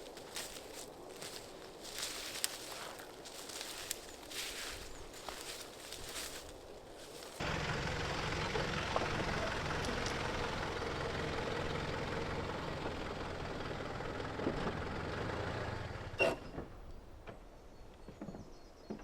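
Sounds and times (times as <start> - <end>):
engine idling: 7.4 - 16.2.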